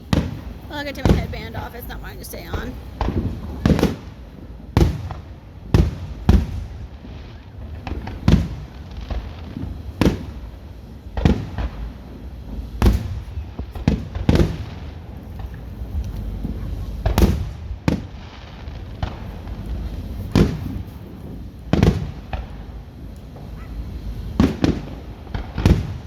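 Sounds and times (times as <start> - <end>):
fireworks bangs: 0.0 - 26.0.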